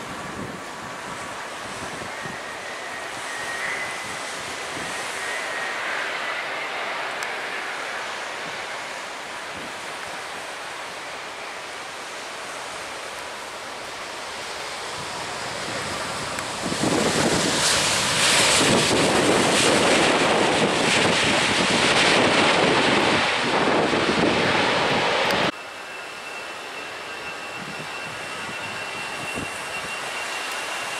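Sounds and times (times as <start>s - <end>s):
wind on microphone: 0.0s - 5.2s, 14.8s - 25.5s
jet engine roar: 0.0s - 30.9s.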